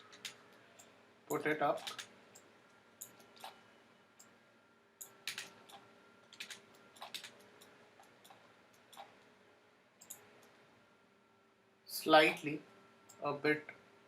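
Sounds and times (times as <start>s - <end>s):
faint steady hum: 0.0s - 14.0s
mouse and keyboard clicks: 1.8s - 3.6s, 5.0s - 9.2s.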